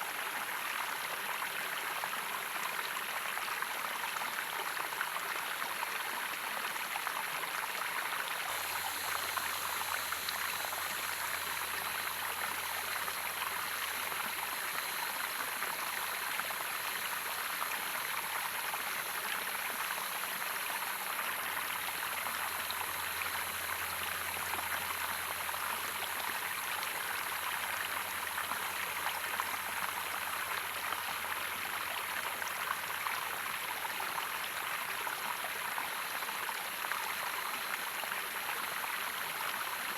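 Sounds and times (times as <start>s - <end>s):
running water flowing: 6.7s - 35.0s.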